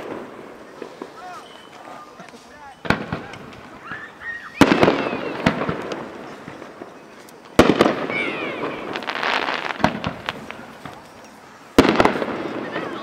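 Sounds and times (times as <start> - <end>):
fireworks crackling: 0.0 - 13.0
fireworks bang: 2.8 - 6.9, 7.6 - 13.0.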